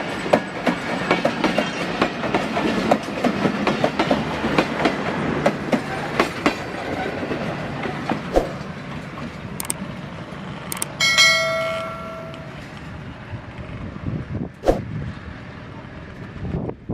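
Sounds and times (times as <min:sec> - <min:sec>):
train wheels clicking over rail joints: 0:00.0 - 0:12.8
train rumble: 0:00.0 - 0:16.9
ringing tone: 0:11.0 - 0:12.6.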